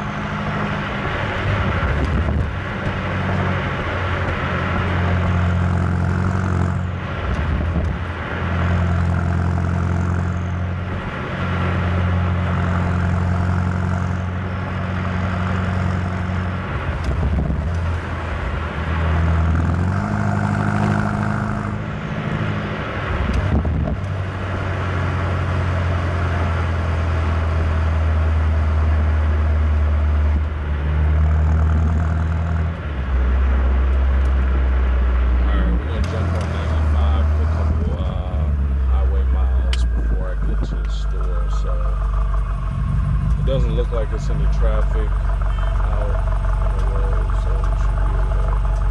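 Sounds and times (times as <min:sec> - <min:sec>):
car engine droning while driving: 0:00.0 - 0:48.9
tyre and road noise: 0:00.0 - 0:48.9.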